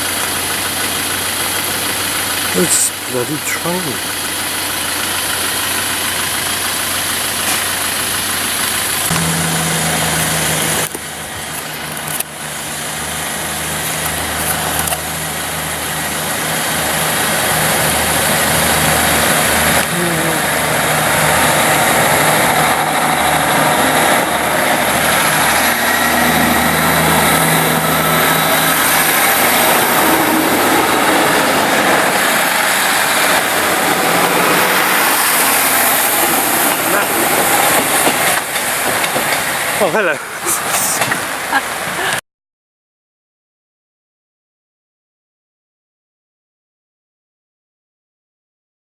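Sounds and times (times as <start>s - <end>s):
engine idling: 0.0s - 41.6s
broad rushing noise: 16.8s - 41.8s.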